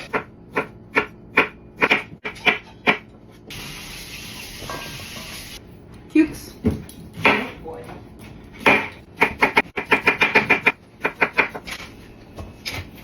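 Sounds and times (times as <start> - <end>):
knife chopping on cutting board: 0.0 - 3.1, 8.6 - 11.7.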